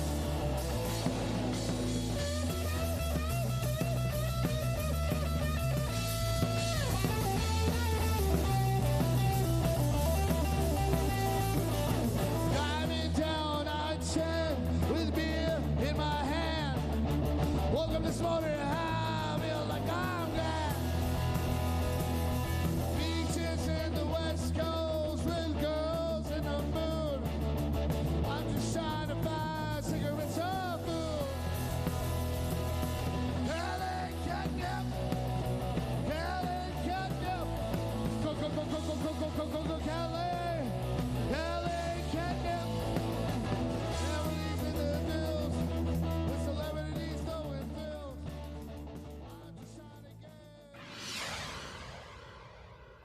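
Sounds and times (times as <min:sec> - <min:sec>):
bass line: 0:00.0 - 0:49.3
drums: 0:00.0 - 0:53.0
guitar: 0:00.0 - 0:53.0
man singing: 0:10.5 - 0:17.0, 0:17.6 - 0:21.6, 0:22.8 - 0:27.3, 0:28.2 - 0:31.9, 0:33.3 - 0:35.2, 0:36.0 - 0:48.3.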